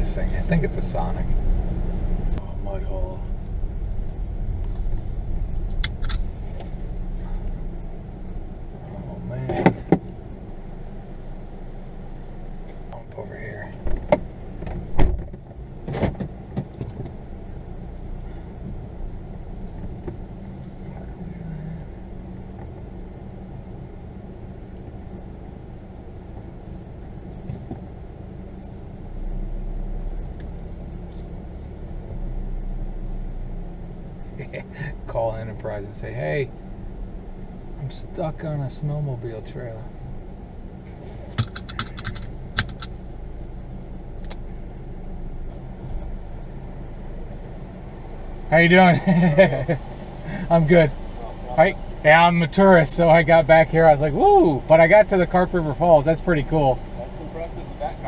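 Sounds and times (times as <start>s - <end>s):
car engine and road rumble: 0.0s - 58.0s
car knocking over bumps: 9.4s - 10.2s, 13.8s - 17.2s.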